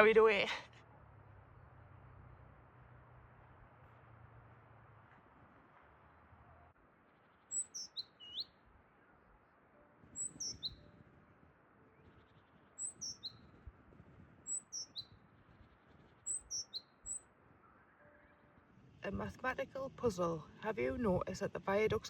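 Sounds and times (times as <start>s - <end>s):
songbird singing: 6.5s - 18.4s.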